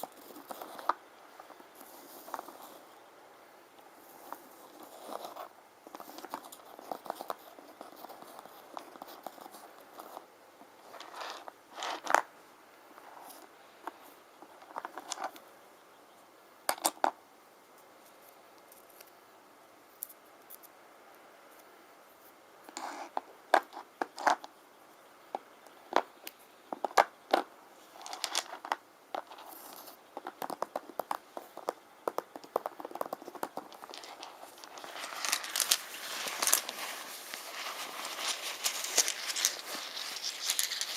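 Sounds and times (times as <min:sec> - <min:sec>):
small stones clicking and scraping: 0:10.9 - 0:12.3, 0:25.3 - 0:40.9.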